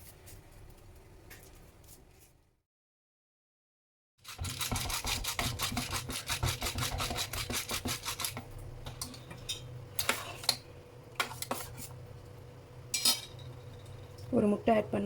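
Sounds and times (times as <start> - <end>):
rapid rubbing of kitchen utensil: 4.2 - 8.4.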